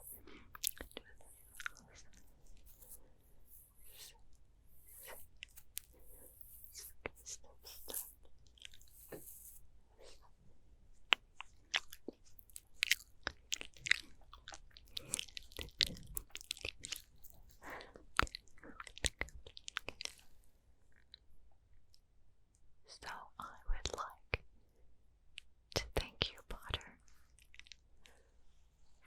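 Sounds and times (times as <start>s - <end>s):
wet mouth clicks and smacks: 0.1s - 4.1s, 11.1s - 20.2s.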